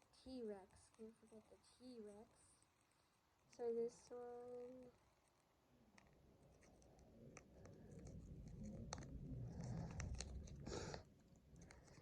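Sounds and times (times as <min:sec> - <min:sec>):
scratchy rustle: 0:04.6 - 0:12.0.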